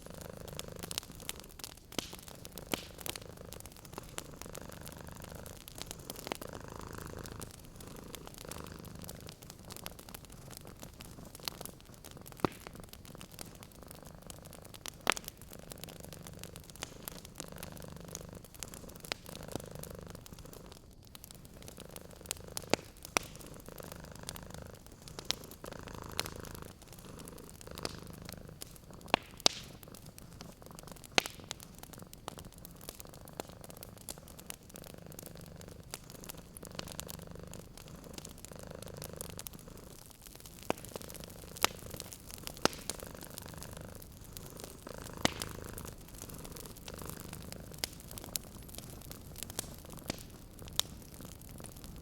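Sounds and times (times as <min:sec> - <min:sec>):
cat purring: 0:00.0 - 0:52.0
fireplace fire crackling: 0:00.0 - 0:52.0.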